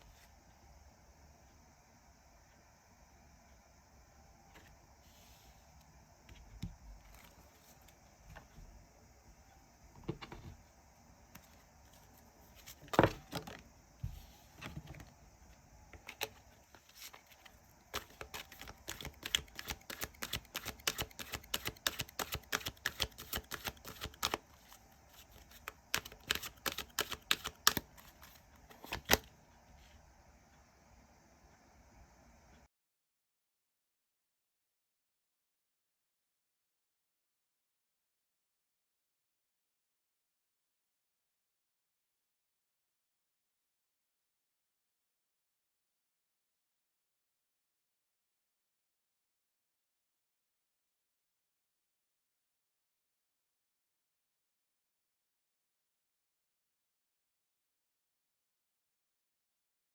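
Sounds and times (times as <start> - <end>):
rapid clicking card shuffles: 16.1 - 29.3
cards tapping and slapping: 18.0 - 24.4, 25.3 - 29.2.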